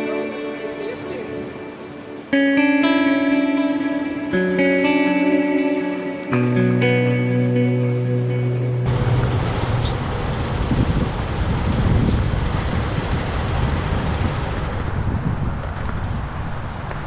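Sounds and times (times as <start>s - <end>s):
guitar music: 0.0s - 11.0s
vehicle road noise rumble: 8.7s - 17.0s.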